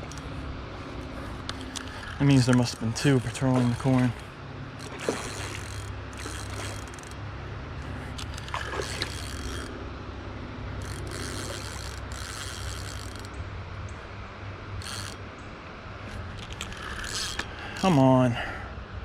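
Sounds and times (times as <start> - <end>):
fishing reel clicking and grinding: 0.0 - 0.3, 1.3 - 7.2, 7.8 - 9.8, 10.7 - 13.4, 14.8 - 15.2, 16.1 - 18.0
steady low hum: 0.0 - 19.0.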